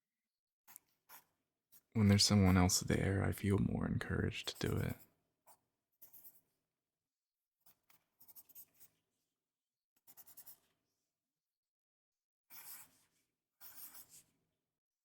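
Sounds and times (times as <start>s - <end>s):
pen scribbling on paper: 4.5s - 6.4s, 7.6s - 9.0s, 10.0s - 10.7s, 12.5s - 14.3s.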